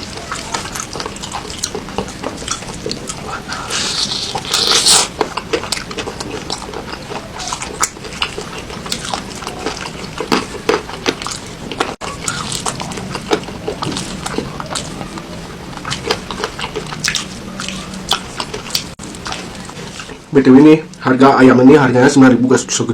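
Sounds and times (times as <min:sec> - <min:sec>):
loud slurp: 0:00.0 - 0:08.2
wet chewing and lip smacks: 0:00.0 - 0:20.3.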